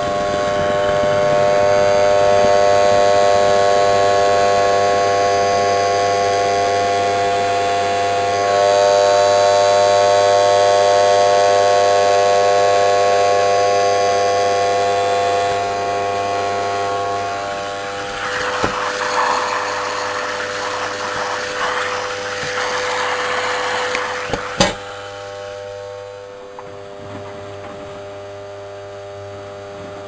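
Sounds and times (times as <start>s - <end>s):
washing machine spinning: 12.8s - 28.5s.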